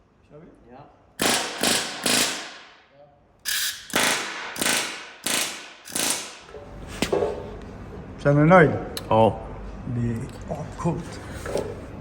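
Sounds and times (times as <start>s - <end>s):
air hammer driving rivets: 1.2s - 2.8s, 3.4s - 7.1s.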